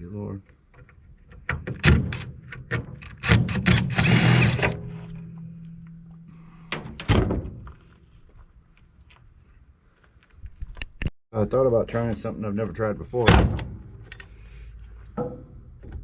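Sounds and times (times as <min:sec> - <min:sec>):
tools and scrap metal clunking: 0:01.2 - 0:07.8, 0:15.1 - 0:16.0
steady low hum: 0:03.9 - 0:08.7
thuds: 0:04.6 - 0:07.8.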